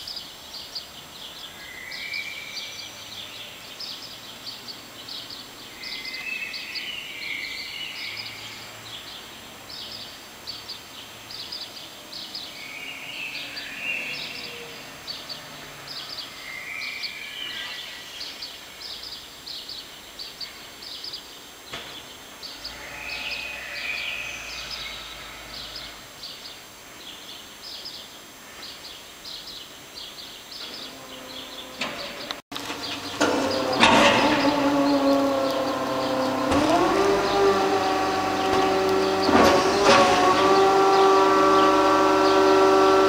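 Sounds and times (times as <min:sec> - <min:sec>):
birds chirping: 0:00.0 - 0:43.0
outdoor background noise: 0:00.0 - 0:43.0.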